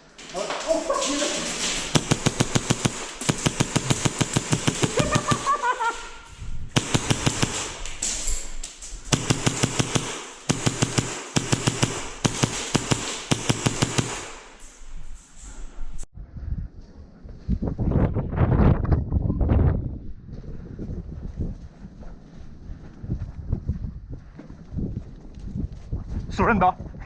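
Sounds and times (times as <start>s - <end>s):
airsoft gun rapid bursts: 1.0s - 6.0s, 6.8s - 8.2s, 9.1s - 14.7s.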